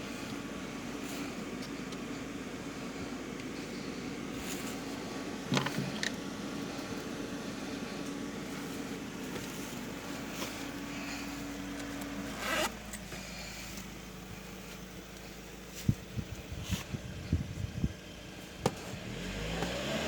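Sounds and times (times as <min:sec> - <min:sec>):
car engine idling: 0:00.0 - 0:20.0
zipper pulled: 0:12.3 - 0:12.8.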